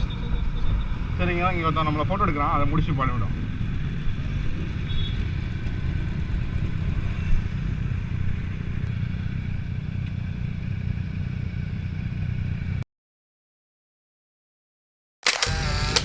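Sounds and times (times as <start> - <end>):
motorcycle engine running: 3.0 - 12.8.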